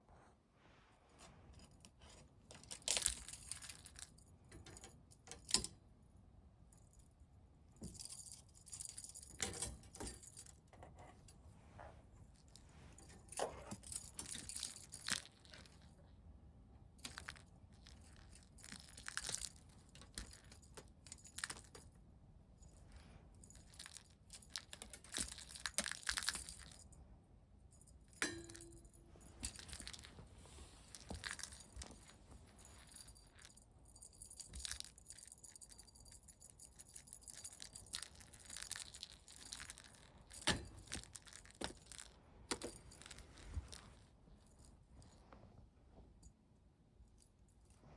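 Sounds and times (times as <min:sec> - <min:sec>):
toy jingling and rattling: 0:12.4 - 0:15.9, 0:17.0 - 0:21.9, 0:23.4 - 0:26.9, 0:27.8 - 0:30.2, 0:30.8 - 0:43.8.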